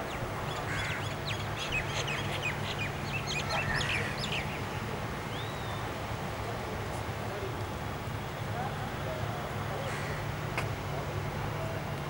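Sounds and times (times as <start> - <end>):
small birds twittering: 0.0 - 5.8.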